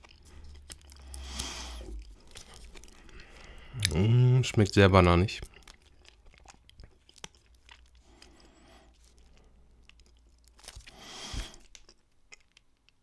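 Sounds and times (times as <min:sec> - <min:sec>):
rustling: 0:00.0 - 0:03.6
wet mouth clicks: 0:00.0 - 0:04.2
person chewing snack bar: 0:00.0 - 0:13.0.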